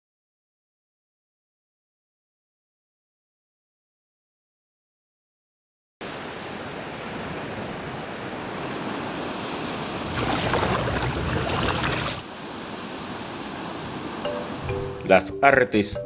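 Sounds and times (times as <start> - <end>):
sea waves surf: 6.0 - 15.0
wave breaking: 8.5 - 14.2.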